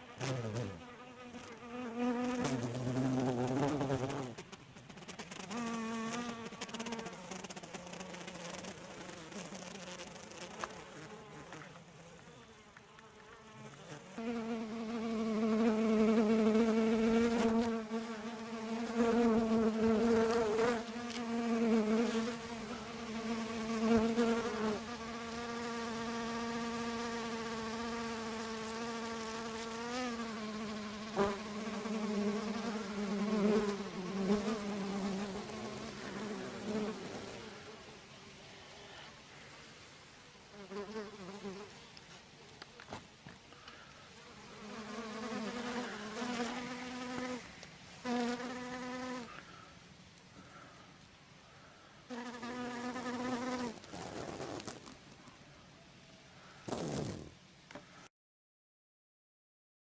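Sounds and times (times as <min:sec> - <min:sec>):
honeybees buzzing: 0:00.0 - 0:37.9, 0:43.7 - 0:49.4.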